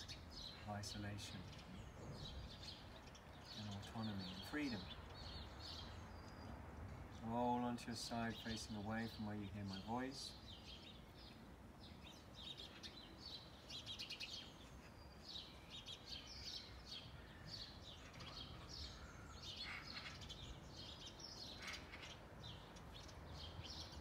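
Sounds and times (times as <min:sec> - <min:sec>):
low outdoor background hum: 0:00.0 - 0:24.0
small birds chirping: 0:00.0 - 0:24.0.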